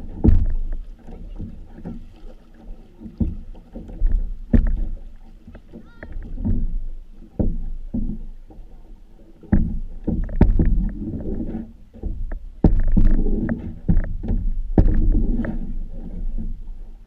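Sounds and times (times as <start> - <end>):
knocks on canoe hull: 0.0 - 8.7, 9.4 - 16.6
low rumble: 9.6 - 17.0.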